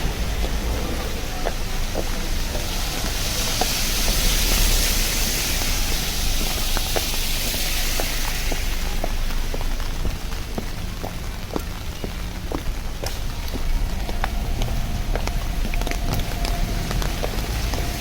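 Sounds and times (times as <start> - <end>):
low rumble: 0.0 - 11.0, 12.2 - 18.0
rain hiss: 0.0 - 18.0
raindrops tapping: 9.1 - 18.0.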